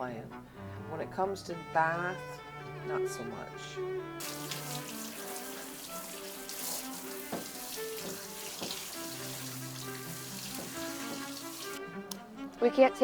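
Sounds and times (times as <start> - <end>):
background music of held notes: 0.0 - 13.0
water running from faucet: 4.2 - 11.8.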